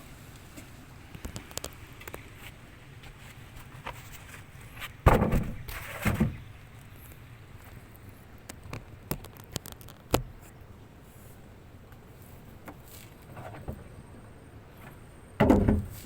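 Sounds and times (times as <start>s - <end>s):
loud thumps: 5.0s - 6.3s.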